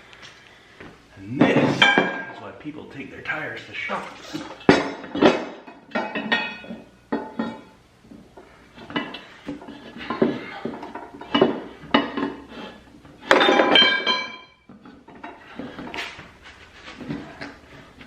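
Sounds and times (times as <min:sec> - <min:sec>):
metal tools clanking on wheel rim: 0:01.4 - 0:02.4, 0:04.0 - 0:07.8, 0:08.8 - 0:16.2.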